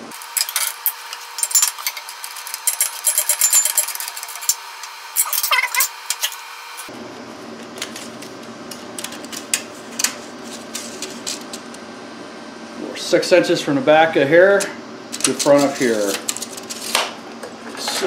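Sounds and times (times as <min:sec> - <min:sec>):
steady low hum: 0:00.0 - 0:18.0
metal parts clinking and rattling: 0:00.2 - 0:04.6, 0:05.2 - 0:06.4.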